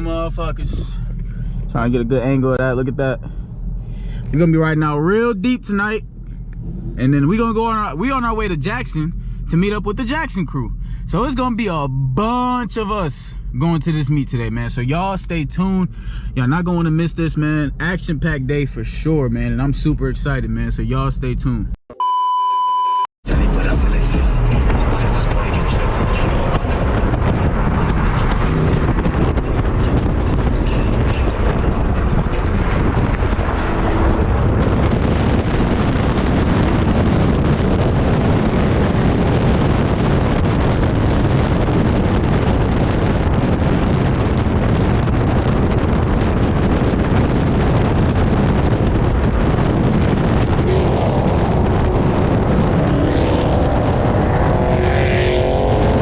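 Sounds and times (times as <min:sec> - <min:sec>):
cars driving off: 0:23.2 - 0:56.0
wind buffeting microphone: 0:24.6 - 0:56.0.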